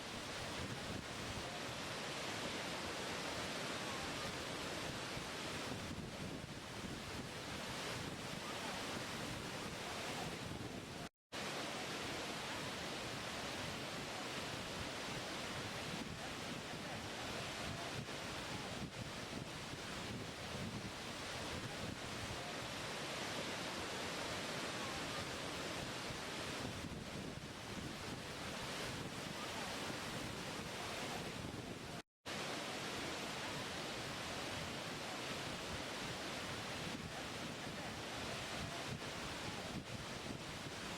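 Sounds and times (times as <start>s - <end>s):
rushing water: 0.0s - 40.9s
waterfall rushing: 1.4s - 5.7s, 22.3s - 26.6s.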